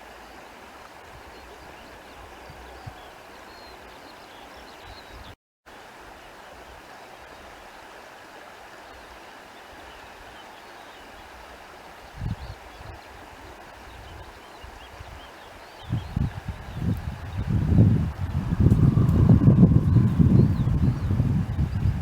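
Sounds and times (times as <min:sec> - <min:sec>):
rushing noise: 0:18.2 - 0:21.5.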